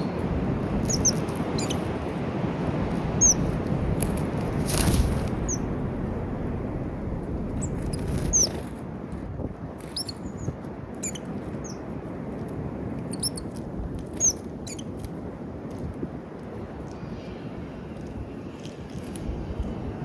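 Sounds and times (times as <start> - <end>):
low rushing noise: 0.2 - 9.8, 15.4 - 20.0
small birds chirping: 0.8 - 1.9, 3.2 - 3.6, 4.7 - 5.7, 7.6 - 8.7, 9.8 - 11.9, 13.1 - 15.1.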